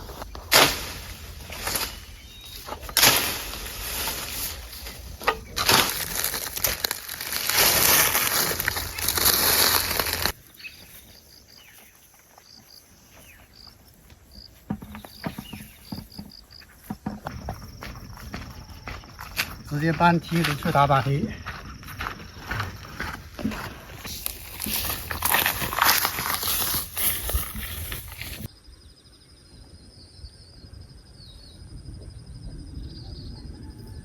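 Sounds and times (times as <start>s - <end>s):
loud handling rustling: 0.0s - 10.4s, 23.4s - 28.5s
insects chirping: 0.0s - 34.0s.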